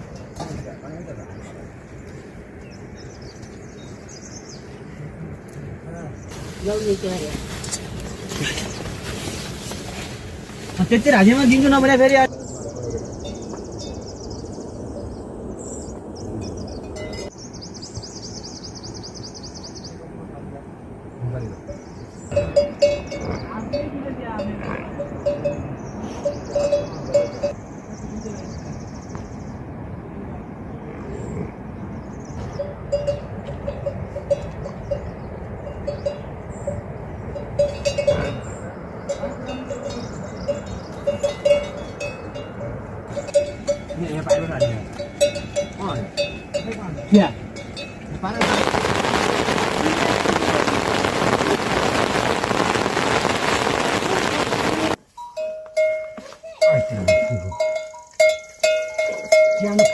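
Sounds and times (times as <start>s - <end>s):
animal bells clanking: 16.4s - 17.4s, 21.7s - 27.6s, 32.4s - 48.4s, 55.1s - 59.9s.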